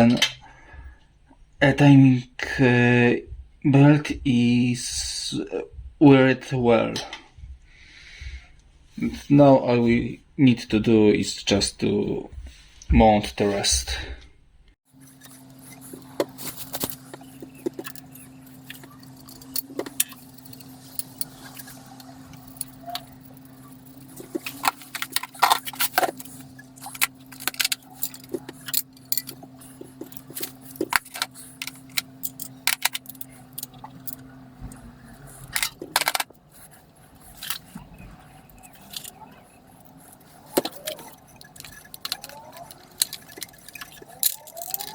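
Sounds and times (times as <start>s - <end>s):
steady low hum: 0.0s - 44.9s
metal engine parts clinking: 15.0s - 44.9s.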